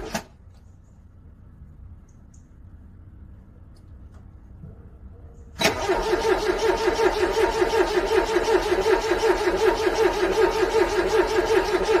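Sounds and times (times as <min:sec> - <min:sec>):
car engine cranking on starter: 0:05.6 - 0:12.0.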